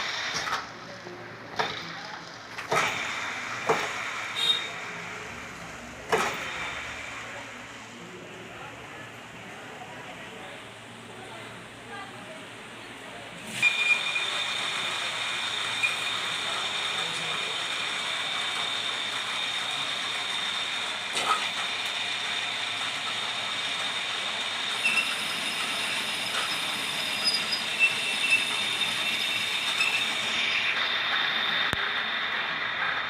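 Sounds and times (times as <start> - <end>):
metal lathe whine: 13.5 - 32.3.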